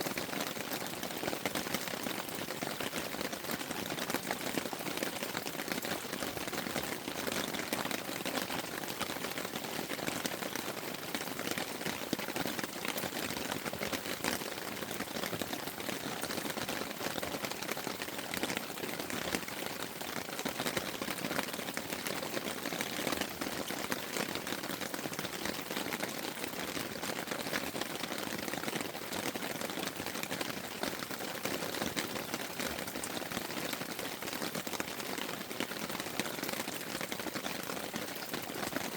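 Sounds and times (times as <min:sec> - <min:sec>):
rain pattering on a tent: 0:00.0 - 0:38.9.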